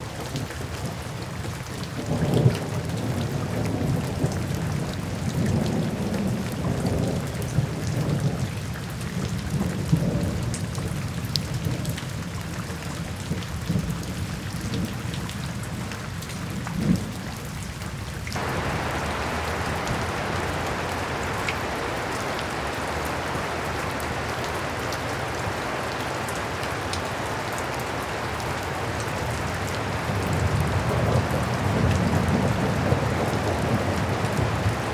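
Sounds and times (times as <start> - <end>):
heavy rain falling: 18.3 - 34.9
rolling thunder rumbling: 18.4 - 34.9.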